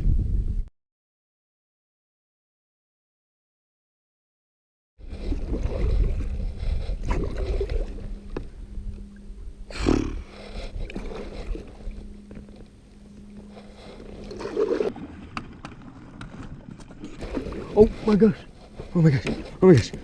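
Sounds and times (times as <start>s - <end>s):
wind rumble on microphone: 0.0s - 0.7s, 5.0s - 15.0s
water sloshing around kayak: 5.0s - 9.3s, 10.2s - 20.0s.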